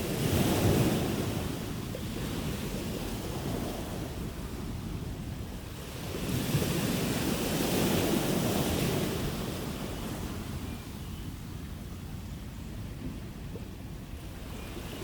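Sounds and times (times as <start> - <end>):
sea waves rushing on shore: 0.0 - 10.6.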